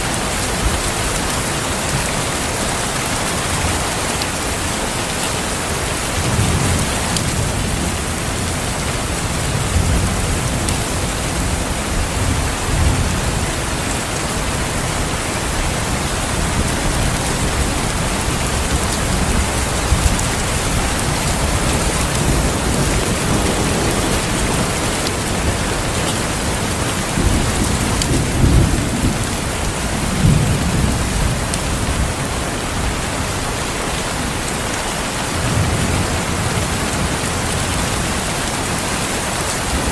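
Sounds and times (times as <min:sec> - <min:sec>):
heavy rain: 0:00.0 - 0:39.9
rolling thunder: 0:14.4 - 0:33.1.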